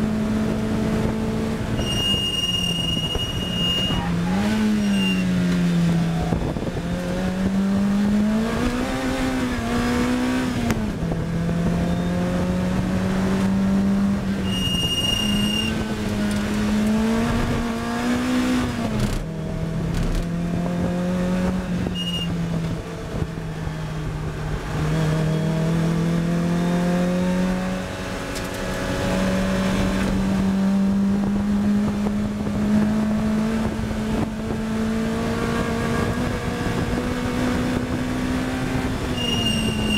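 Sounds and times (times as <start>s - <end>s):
race car engine accelerating: 0.0s - 39.9s
brief high squeal: 1.8s - 5.3s, 14.4s - 15.8s, 21.9s - 22.3s, 39.1s - 39.9s.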